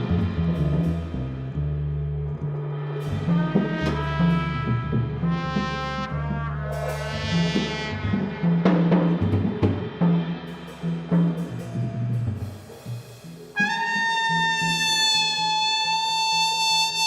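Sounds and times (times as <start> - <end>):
double bass low notes: 0.0 - 13.8
brass horn long held note: 3.0 - 9.0, 13.6 - 17.0
drum strikes: 3.0 - 13.8.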